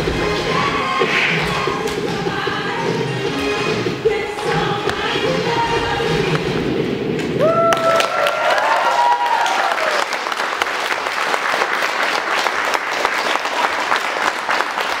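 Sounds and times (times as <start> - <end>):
people cheering: 7.4 - 15.0
audience clapping: 7.5 - 15.0.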